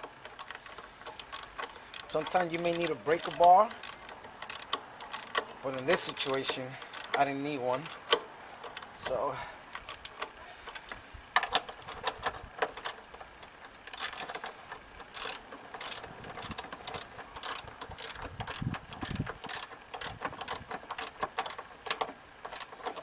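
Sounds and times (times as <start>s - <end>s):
socket ratchet clicking: 0.0s - 9.2s, 13.8s - 23.0s.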